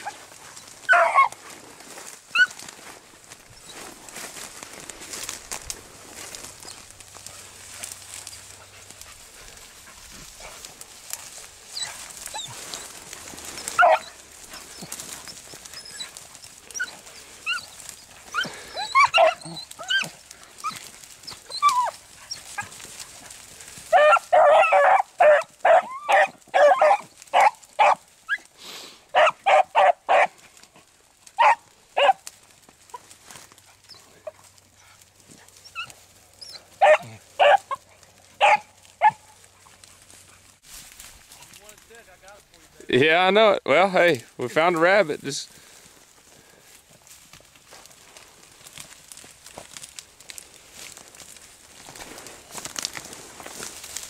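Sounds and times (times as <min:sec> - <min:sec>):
hounds baying and barking: 0:00.0 - 0:05.3, 0:06.2 - 0:40.6.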